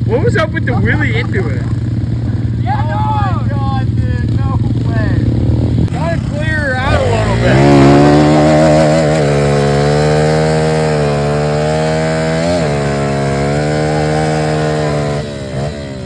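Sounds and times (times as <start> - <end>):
small motorcycle engine revving high: 4.3 - 16.0.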